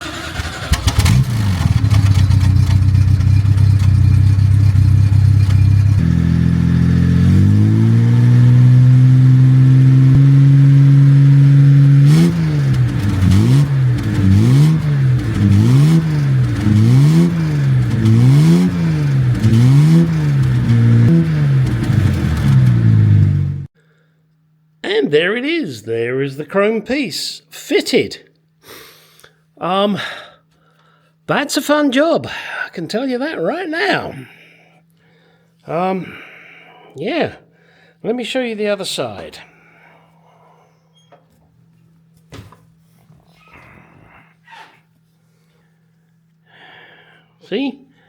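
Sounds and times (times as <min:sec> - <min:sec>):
car engine revving: 0:00.0 - 0:23.7.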